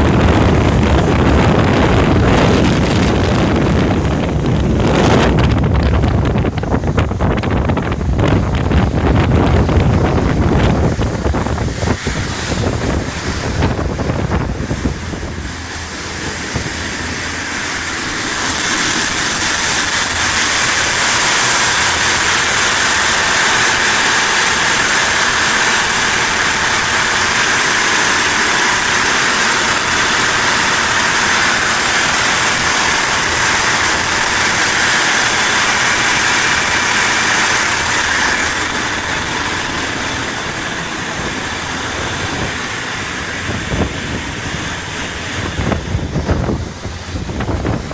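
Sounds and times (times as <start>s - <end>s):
marine diesel engines running: 0.0s - 47.9s
turbocharger whine: 0.0s - 47.9s
wind buffeting microphone: 0.0s - 47.9s.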